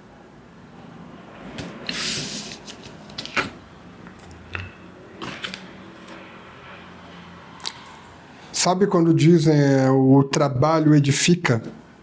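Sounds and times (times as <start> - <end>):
cards sliding on table: 1.5 - 3.6.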